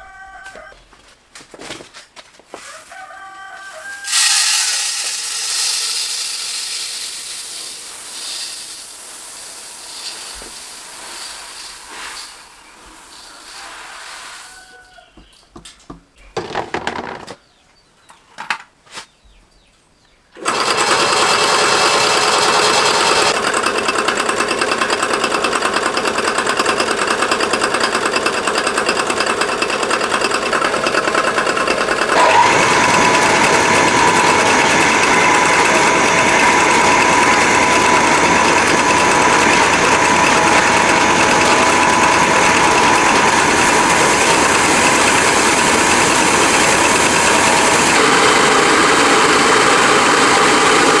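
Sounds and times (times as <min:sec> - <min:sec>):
milling machine clatter: 0:04.1 - 0:13.2, 0:16.4 - 0:17.4, 0:20.4 - 0:51.0.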